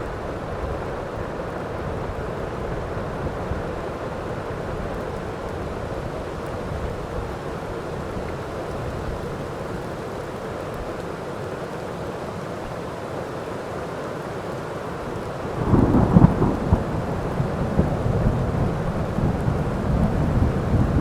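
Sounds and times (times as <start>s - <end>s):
heavy rain: 0.0s - 21.0s.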